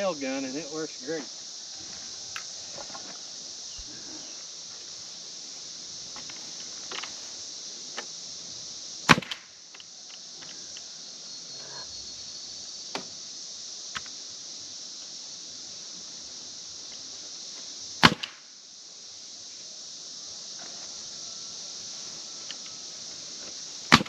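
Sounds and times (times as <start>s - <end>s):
cicadas buzzing: 0.0s - 24.0s
nail gun shot: 9.1s - 9.5s, 18.0s - 18.4s.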